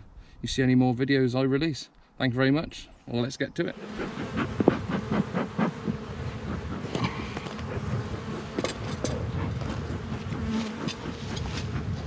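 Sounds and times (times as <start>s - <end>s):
honeybees buzzing: 3.7s - 12.0s.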